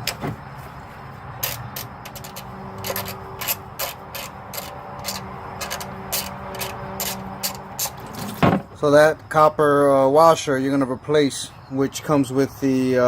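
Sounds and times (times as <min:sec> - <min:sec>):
ratchet clicking: 0:01.4 - 0:08.4.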